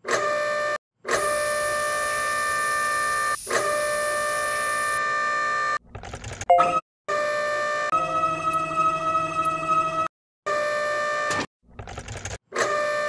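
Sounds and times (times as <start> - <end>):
spray paint hissing: 1.2 - 5.0.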